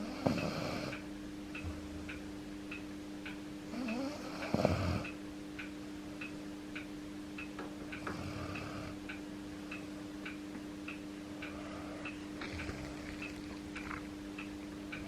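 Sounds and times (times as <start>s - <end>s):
dog snoring: 0.0s - 1.0s, 3.7s - 5.2s, 8.0s - 9.0s, 11.5s - 14.1s
steady low hum: 0.0s - 15.0s
clock ticking: 5.0s - 15.0s.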